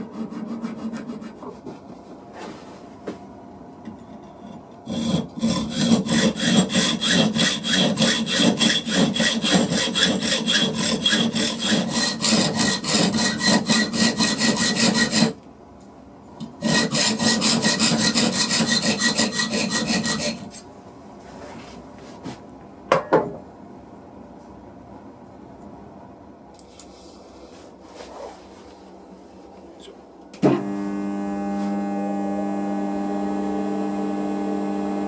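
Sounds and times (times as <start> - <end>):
hand saw cutting wood: 0.0 - 1.5, 4.9 - 15.4, 16.6 - 20.6.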